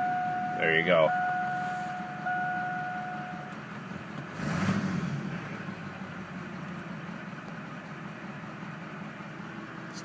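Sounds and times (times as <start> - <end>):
steady high tone: 0.0 - 3.6
diesel engine idling: 0.0 - 10.0.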